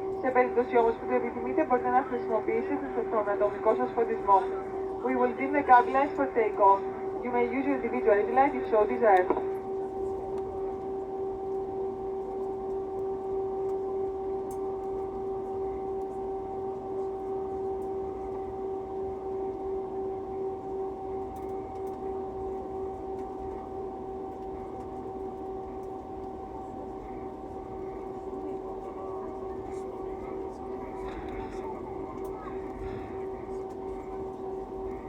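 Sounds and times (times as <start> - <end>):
aircraft cabin hum: 0.0 - 10.8, 24.4 - 35.0.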